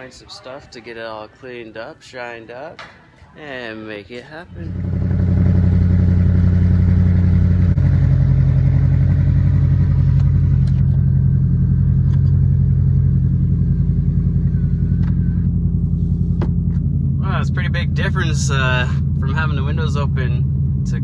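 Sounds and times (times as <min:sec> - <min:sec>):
car exhaust droning: 0:04.4 - 0:21.0.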